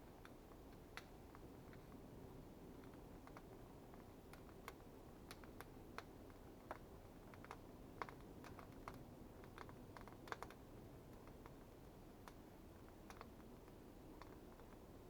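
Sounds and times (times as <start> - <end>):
low steady background noise: 0.0 - 15.0
faint sharp clicks: 2.8 - 14.8.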